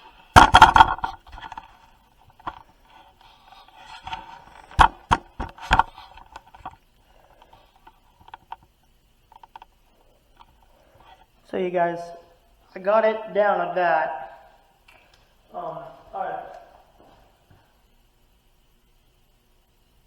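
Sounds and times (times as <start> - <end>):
sharp knocks: 0.4 - 1.6, 4.8 - 5.9.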